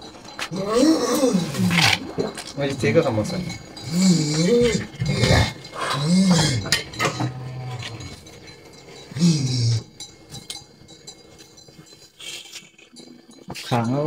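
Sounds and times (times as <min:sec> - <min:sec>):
low vocal hum: 0:03.3 - 0:08.5, 0:09.1 - 0:10.0.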